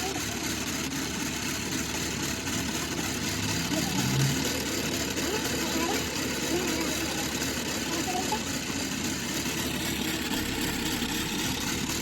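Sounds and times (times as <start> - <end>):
motor running: 0.0 - 12.0
faint voices: 2.2 - 12.0.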